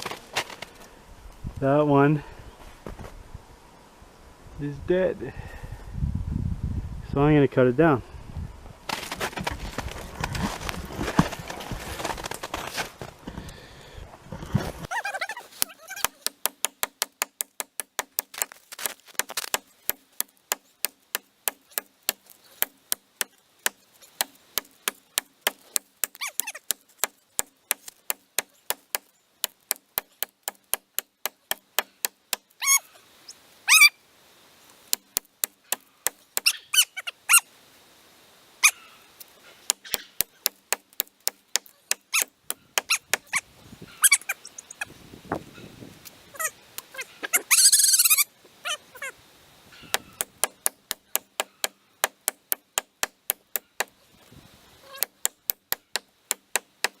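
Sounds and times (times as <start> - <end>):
axe chopping dead tree: 15.5 - 32.5, 34.9 - 36.6, 39.7 - 43.4, 49.8 - 54.0, 54.9 - 57.0.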